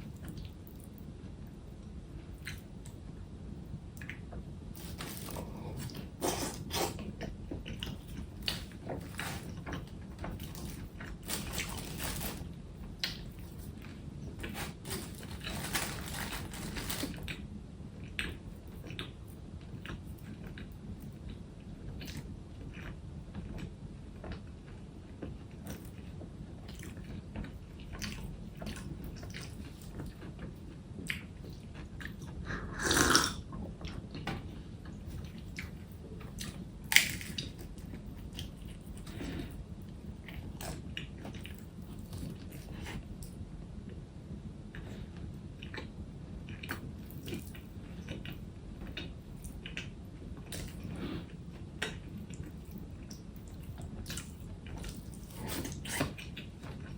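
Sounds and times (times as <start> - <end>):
person chewing and biting: 4.8 - 12.4, 14.4 - 17.4, 36.4 - 39.5.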